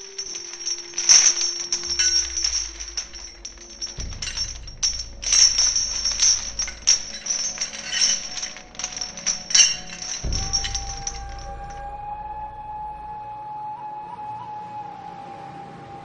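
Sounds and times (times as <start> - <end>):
jingling percussion music: 0.0 - 11.8.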